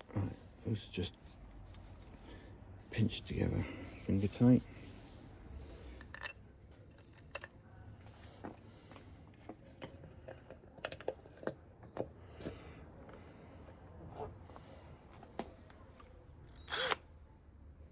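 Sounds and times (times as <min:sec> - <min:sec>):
small metal parts clicking: 0:06.0 - 0:07.5.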